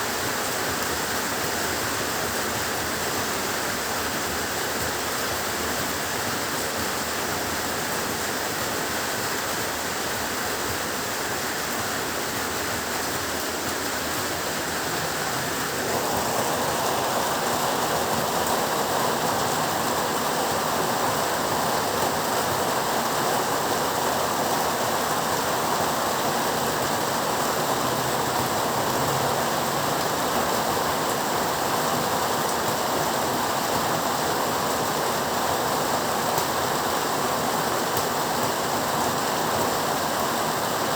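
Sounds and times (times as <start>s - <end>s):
heavy rain hiss: 0.0s - 40.9s.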